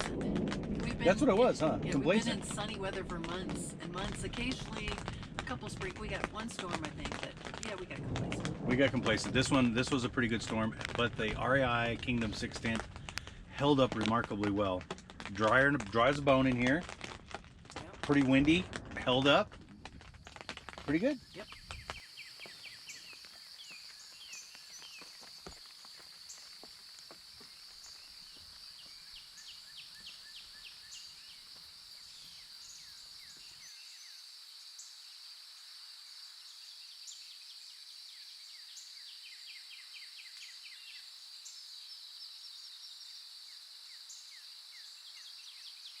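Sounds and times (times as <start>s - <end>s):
low background rumble: 0.0s - 22.0s
birds chirping in trills: 21.2s - 35.0s.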